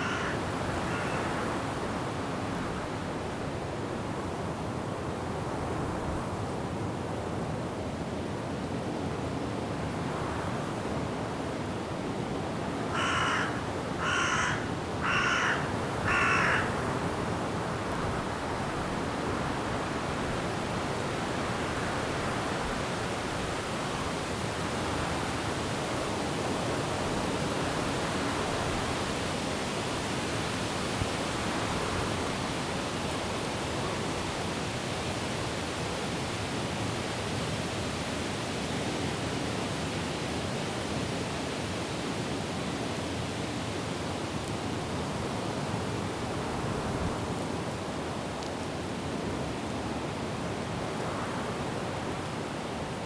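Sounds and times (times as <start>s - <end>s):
crow cawing: 0.0s - 1.6s, 12.9s - 16.8s
wind and rain in trees: 0.0s - 53.0s.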